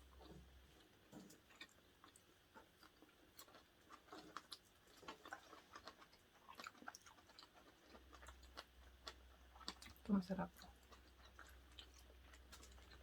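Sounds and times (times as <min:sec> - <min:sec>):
chewing and wet mouth clicks: 0:00.1 - 0:13.0.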